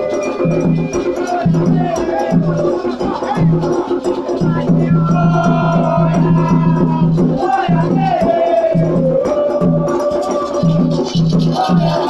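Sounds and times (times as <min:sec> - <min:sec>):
hand drums beating a rhythm: 0:00.0 - 0:12.0
voices singing a chant: 0:00.0 - 0:12.0.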